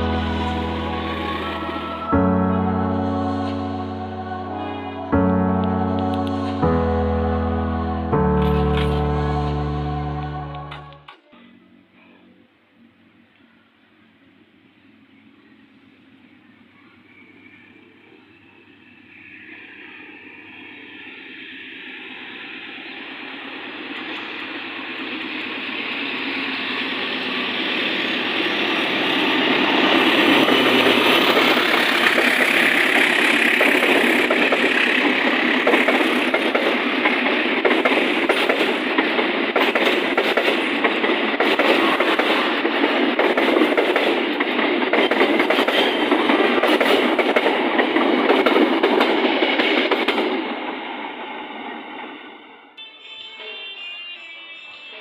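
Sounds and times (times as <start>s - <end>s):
train passing with clattering wheels: 0.0s - 6.7s, 13.3s - 52.8s.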